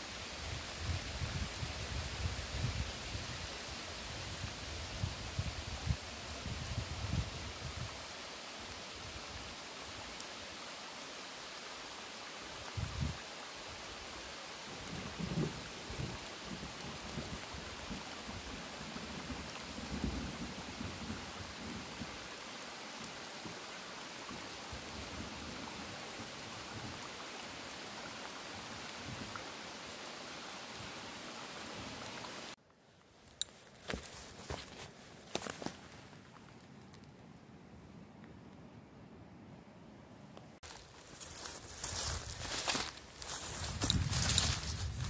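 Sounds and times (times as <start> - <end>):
rain hissing through trees: 0.0 - 38.7, 40.4 - 45.0
faint light rain patter: 0.0 - 38.9, 40.3 - 45.0.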